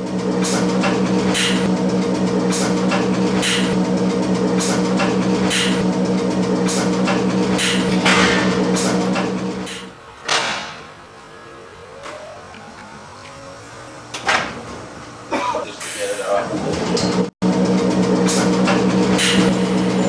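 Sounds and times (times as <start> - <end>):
machine hum: 0.0 - 10.0, 16.6 - 20.0.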